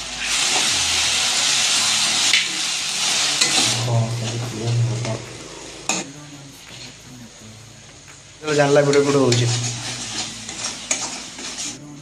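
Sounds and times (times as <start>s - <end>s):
paste sizzling in hot oil: 0.0s - 12.0s
spatula scraping a pan: 3.0s - 6.1s, 8.6s - 11.8s.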